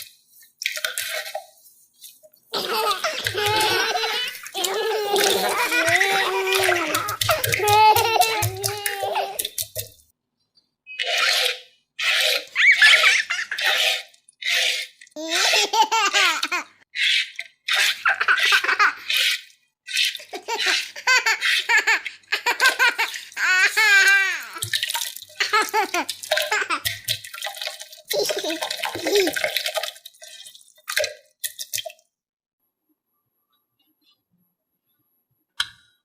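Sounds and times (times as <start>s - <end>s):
young child laughing: 2.6s - 9.4s, 12.6s - 13.7s, 15.2s - 19.2s, 20.3s - 24.6s, 25.4s - 26.9s, 28.1s - 29.4s.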